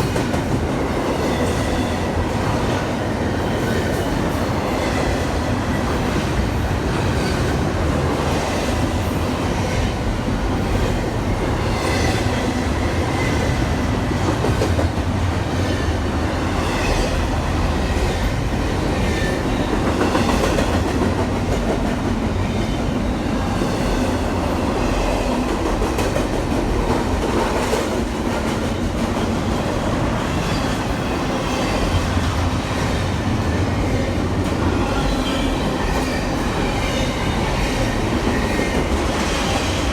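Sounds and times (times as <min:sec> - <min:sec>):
train rumbling on rails: 0:00.0 - 0:39.9.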